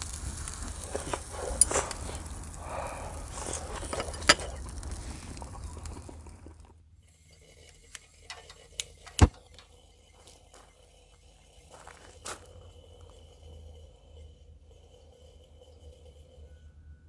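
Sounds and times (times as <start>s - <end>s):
sizzling hiss of cooking: 0.0s - 6.4s.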